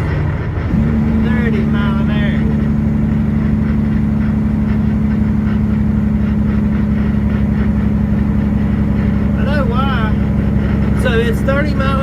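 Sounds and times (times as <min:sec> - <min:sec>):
truck diesel engine droning: 0:00.0 - 0:12.0.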